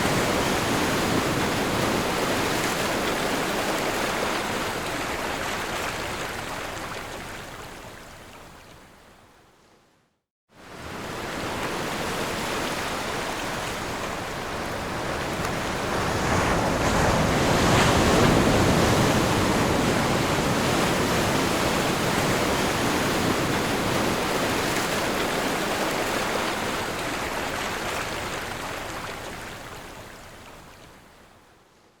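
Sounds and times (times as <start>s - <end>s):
sea waves washing in: 10.6s - 30.3s.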